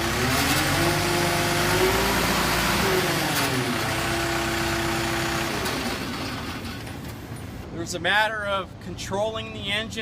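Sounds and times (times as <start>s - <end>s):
pump engine running: 0.0s - 7.0s.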